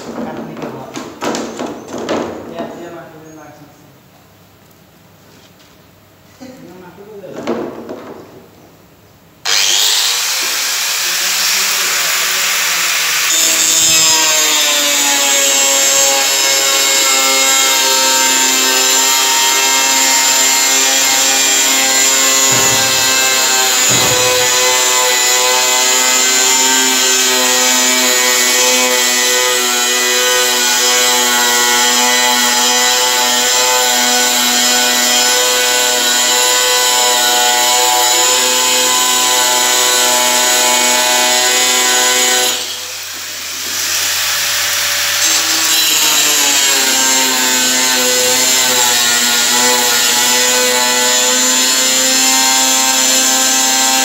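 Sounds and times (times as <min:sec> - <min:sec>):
power tool motor whining: 0:09.4 - 0:11.9, 0:19.2 - 0:26.6.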